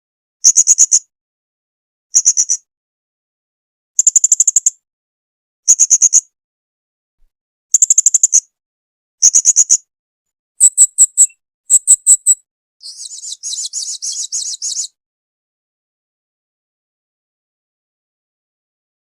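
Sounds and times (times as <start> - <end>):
soft bird trill: 10.6 - 15.0.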